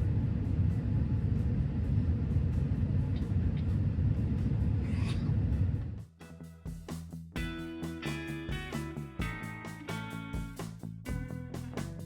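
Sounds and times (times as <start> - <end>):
airliner cabin rumble: 0.0 - 6.0.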